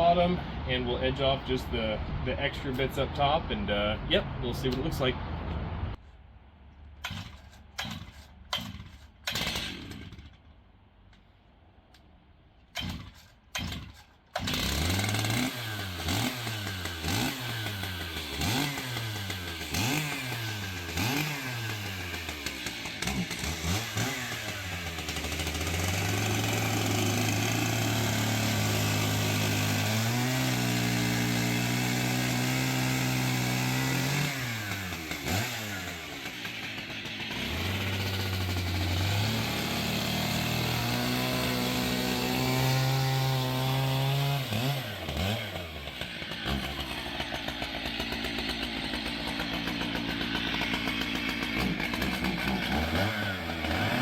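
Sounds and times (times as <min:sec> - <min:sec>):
chainsaw revving: 0:07.0 - 0:10.4, 0:12.7 - 0:54.0.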